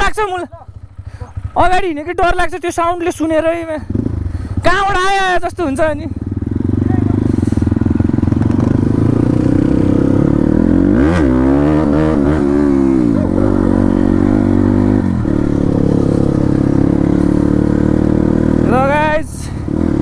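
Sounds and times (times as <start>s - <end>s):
dirt bike engine revving: 6.2s - 20.0s.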